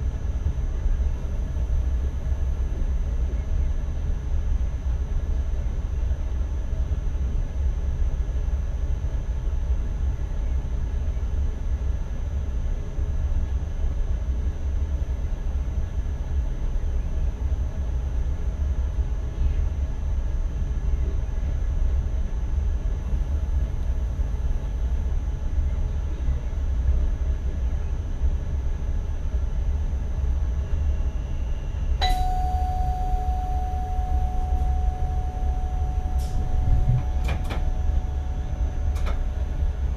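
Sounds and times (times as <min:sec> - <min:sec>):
electric train rumbling: 0:30.4 - 0:39.9
electronic tone: 0:32.0 - 0:39.9
click: 0:36.1 - 0:37.7, 0:38.9 - 0:39.2.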